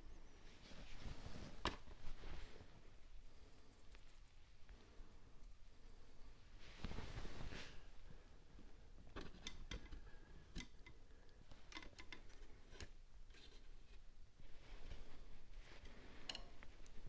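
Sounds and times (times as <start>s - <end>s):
wooden parts and tools clicking: 9.1s - 13.7s, 15.7s - 17.0s.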